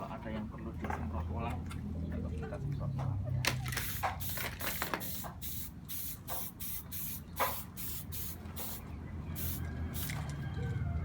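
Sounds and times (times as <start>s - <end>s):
spray paint can hissing: 3.7s - 8.8s, 9.4s - 10.2s.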